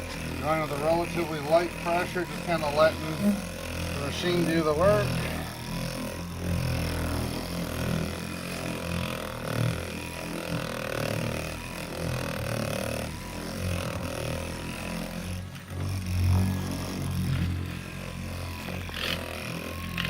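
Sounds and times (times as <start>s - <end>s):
electric buffer motor hum: 0.0s - 20.0s
polishing pad rubbing on panel: 0.1s - 5.3s.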